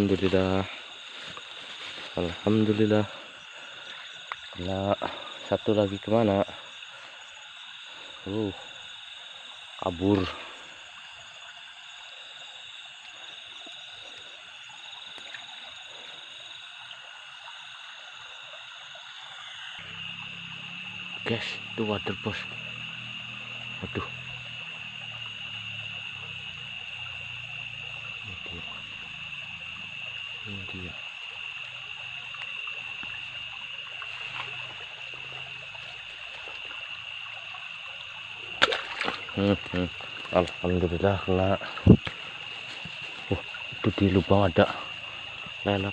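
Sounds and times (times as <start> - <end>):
faint stream trickle: 0.0 - 45.9
frogs trilling: 0.0 - 45.9
insects trilling: 0.0 - 45.9.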